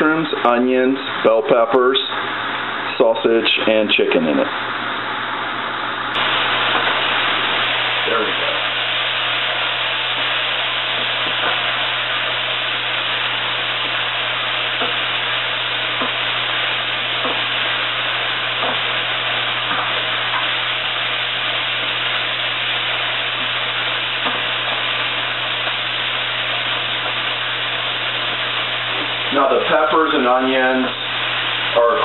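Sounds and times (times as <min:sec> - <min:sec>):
food sizzling in a pot: 0:06.2 - 0:32.0.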